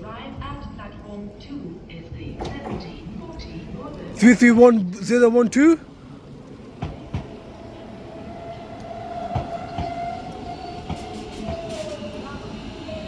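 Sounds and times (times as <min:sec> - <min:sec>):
electric train whine: 0:06.0 - 0:13.0.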